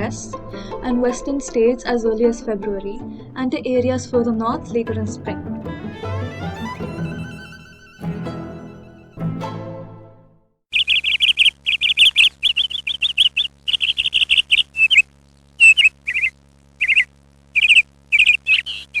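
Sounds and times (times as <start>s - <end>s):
faint steady hum: 10.7s - 19.0s
small bird chirping: 10.7s - 19.0s.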